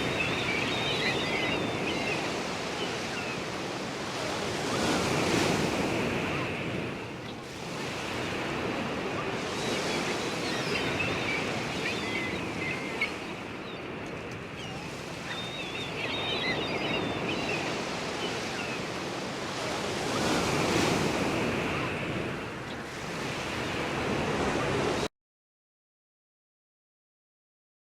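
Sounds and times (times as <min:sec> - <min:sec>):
birds calling faintly: 0:00.0 - 0:07.4, 0:08.0 - 0:19.3
ocean surf washing: 0:00.0 - 0:25.1.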